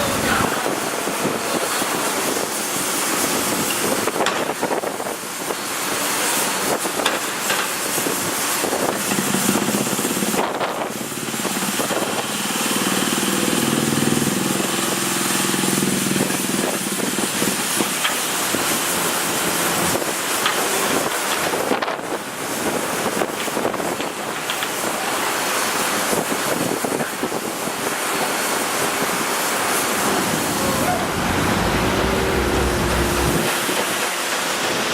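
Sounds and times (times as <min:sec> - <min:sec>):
engine hum: 0:08.8 - 0:21.5, 0:29.6 - 0:34.2
passing road traffic: 0:29.6 - 0:33.8.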